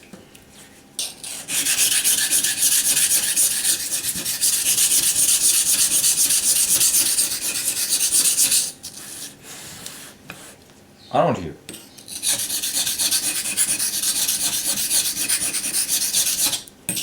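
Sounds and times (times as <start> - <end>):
knife rasping on sharpening stone: 1.0 - 9.3, 11.7 - 17.0.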